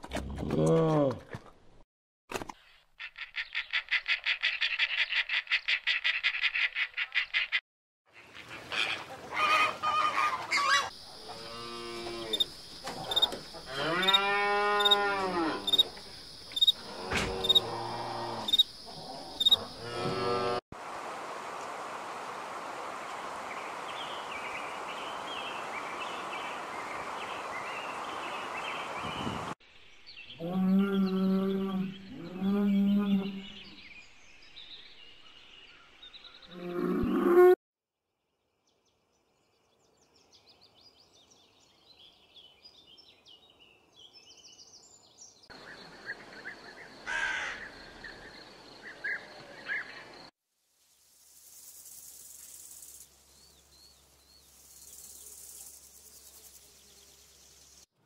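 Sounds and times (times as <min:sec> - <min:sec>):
loud pitched animal calls: 0:08.7 - 0:15.9
small chirps: 0:12.4 - 0:13.4, 0:15.7 - 0:16.8
steady hiss: 0:50.6 - 0:57.9.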